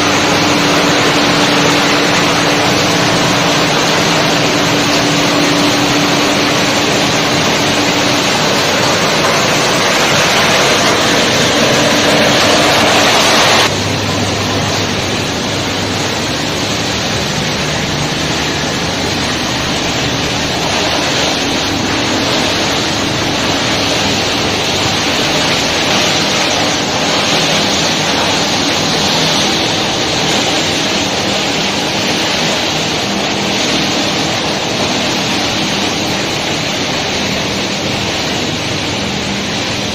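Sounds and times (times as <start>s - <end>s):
machinery din: 0.0s - 38.0s
rushing water: 0.0s - 39.9s.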